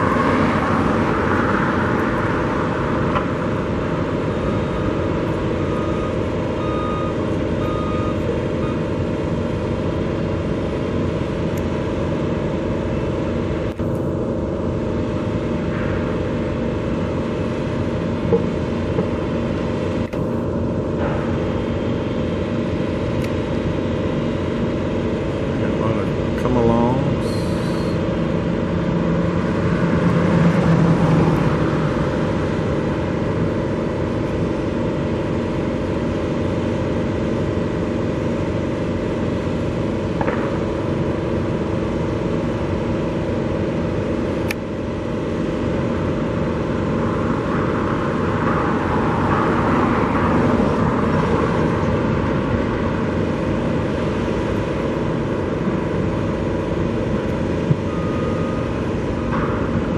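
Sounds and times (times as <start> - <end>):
vehicle engines rumbling: 0.0 - 59.9.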